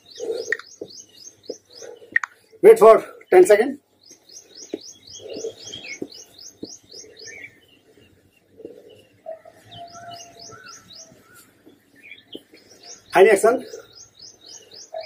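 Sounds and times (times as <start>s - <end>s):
short bird calls: 0.0s - 2.5s, 4.2s - 7.8s
rapid repeated bird chirps: 0.0s - 15.0s.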